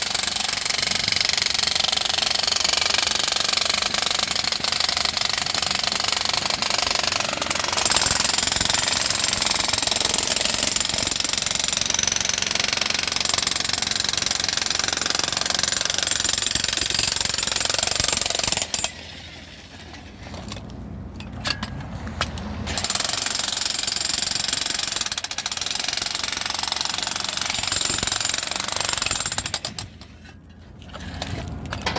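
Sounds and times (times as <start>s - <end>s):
jackhammer breaking concrete: 0.0s - 19.0s, 22.7s - 30.0s.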